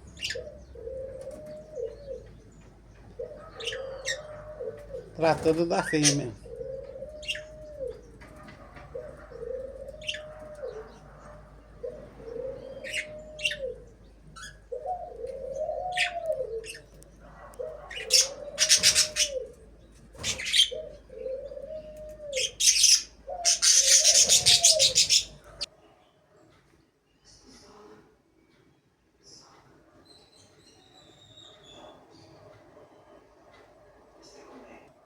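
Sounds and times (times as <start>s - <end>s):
dove cooing: 0.0s - 25.7s, 31.6s - 35.0s
small birds chirping: 0.0s - 25.7s.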